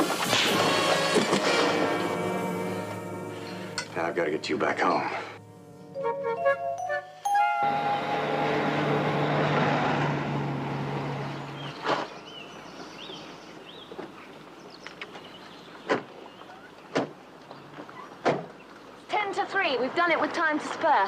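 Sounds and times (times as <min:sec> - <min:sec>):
car engine running: 0:07.7 - 0:11.9
birds chirping: 0:10.7 - 0:19.4.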